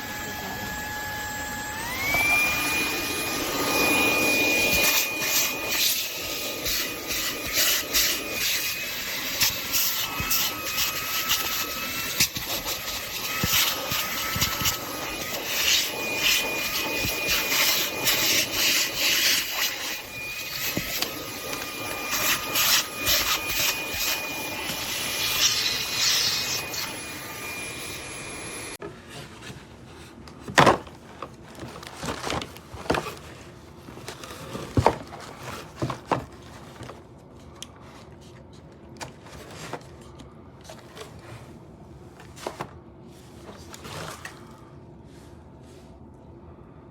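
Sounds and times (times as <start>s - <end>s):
handheld vacuum running: 0.0s - 28.8s.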